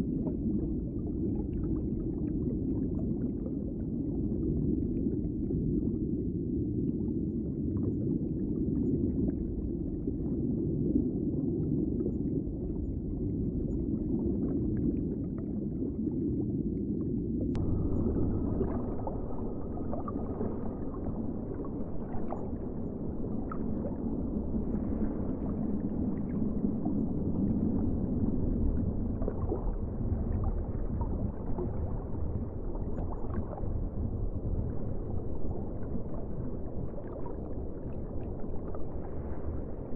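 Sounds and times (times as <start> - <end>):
muffled underwater noise: 17.5 - 39.9.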